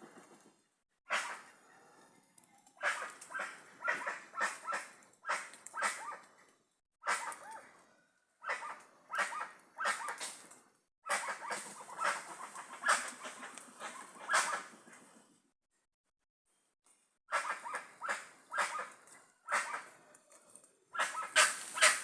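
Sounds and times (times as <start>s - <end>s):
flock of birds calling loudly: 21.0s - 22.0s.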